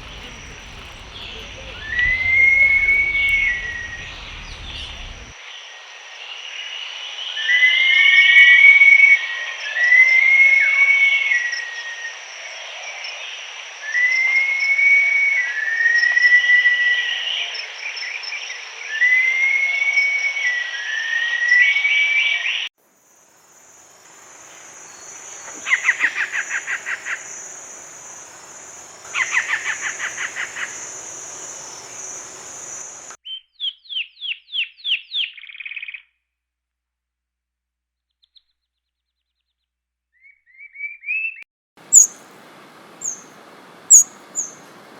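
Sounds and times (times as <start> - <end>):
bird chirps: 0.0 - 5.3, 24.4 - 36.1, 38.1 - 44.9
rapid bird trills: 0.0 - 5.3, 24.4 - 33.8, 41.8 - 44.9
arching whistled bird notes: 0.0 - 5.4, 23.9 - 36.1, 40.2 - 44.9
steady high hiss: 0.0 - 5.4, 22.8 - 33.2, 41.8 - 44.9.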